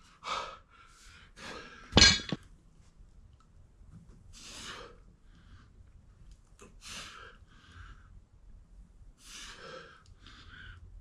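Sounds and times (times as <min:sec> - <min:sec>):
person breathing slowly: 0:00.0 - 0:02.0, 0:04.3 - 0:06.0, 0:06.6 - 0:08.4, 0:09.2 - 0:11.0.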